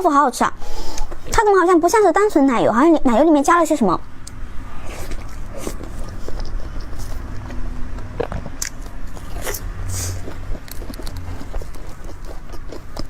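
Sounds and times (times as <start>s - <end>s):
chewing with wet mouth smacks: 4.2s - 13.0s.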